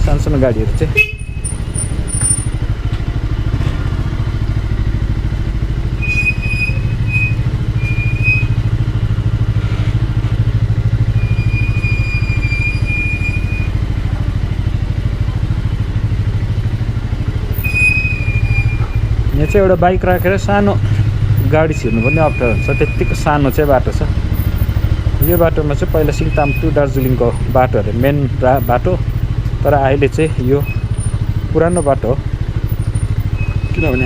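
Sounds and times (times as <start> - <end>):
motorcycle engine running: 0.0 - 34.0
high-pitched squeal: 6.0 - 8.7, 11.2 - 13.8, 17.5 - 20.3, 21.4 - 27.2, 33.4 - 34.0.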